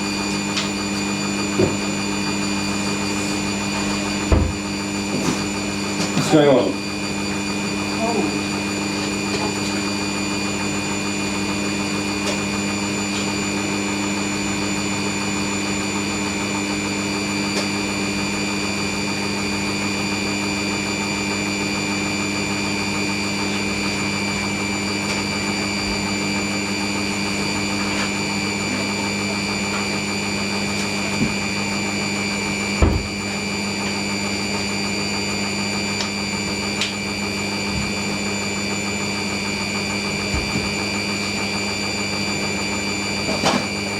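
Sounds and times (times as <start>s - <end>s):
washing machine spinning: 0.0s - 43.9s
sharp knock: 4.3s - 4.6s.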